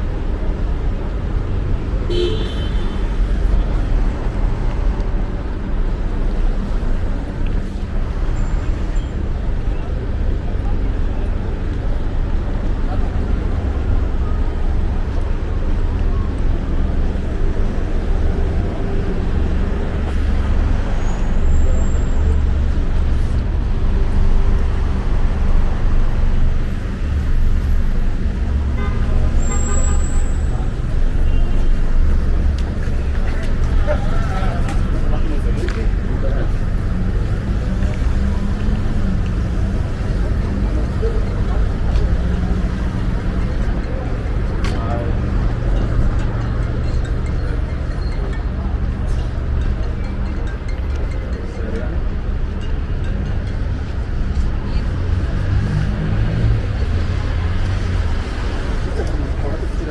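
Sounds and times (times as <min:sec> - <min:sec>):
road traffic rumble: 0:00.0 - 0:59.9
car horn toot: 0:02.1 - 0:03.0, 0:28.8 - 0:30.4.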